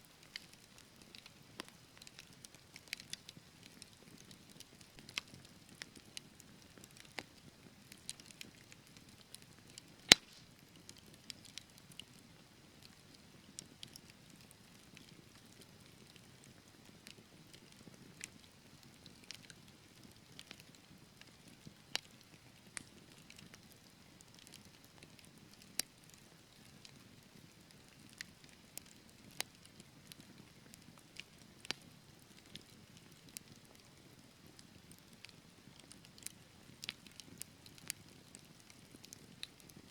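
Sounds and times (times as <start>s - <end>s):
logs crackling and popping: 0.2s - 39.9s
fire hissing: 10.1s - 10.6s.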